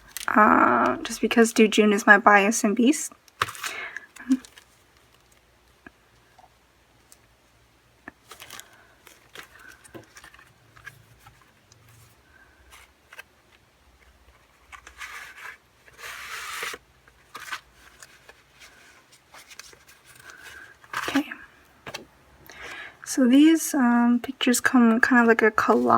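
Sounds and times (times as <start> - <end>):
paper and plastic packaging rustling: 3.3 - 5.8, 8.1 - 22.8, 25.0 - 25.9.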